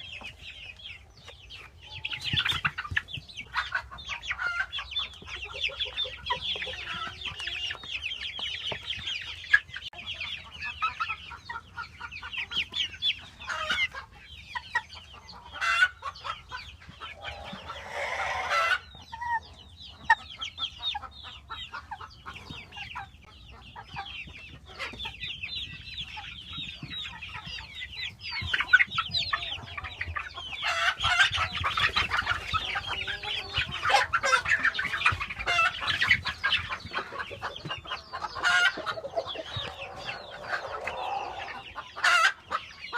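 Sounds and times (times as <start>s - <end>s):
chickens clucking: 0.0s - 42.9s
long chicken call: 17.1s - 18.8s.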